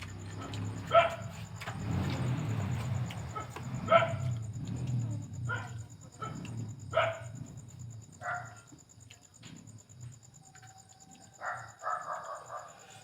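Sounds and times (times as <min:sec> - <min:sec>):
dog barking: 0:00.4 - 0:01.4, 0:03.3 - 0:04.4, 0:05.5 - 0:07.4, 0:08.2 - 0:08.7, 0:11.4 - 0:13.0.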